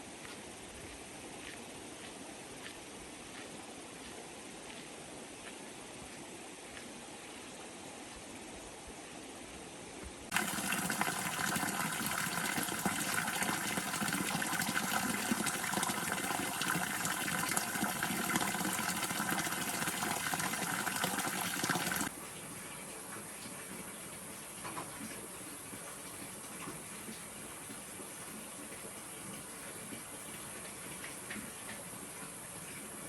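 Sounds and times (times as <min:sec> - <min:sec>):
quiet wash of water: 0:05.0 - 0:33.0
water splashing into a container: 0:10.3 - 0:22.2.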